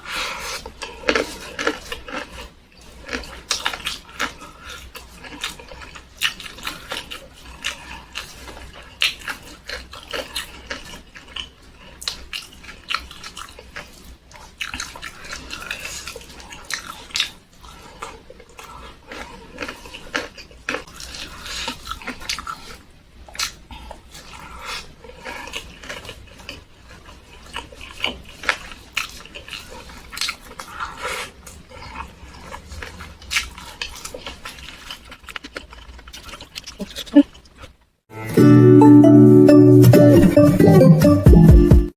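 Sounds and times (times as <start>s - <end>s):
person chewing with mouth smacking: 0.0s - 37.8s.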